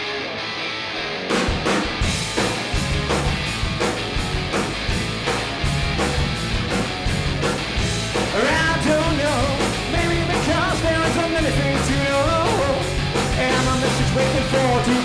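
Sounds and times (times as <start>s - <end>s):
electric guitar: 0.0s - 15.0s
drums and bass beat: 1.2s - 15.0s.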